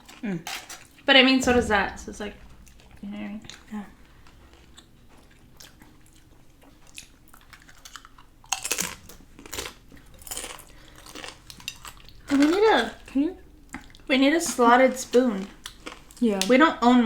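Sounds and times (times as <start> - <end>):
chewing crisp food: 0.0 - 1.1, 4.5 - 13.0, 15.1 - 16.5.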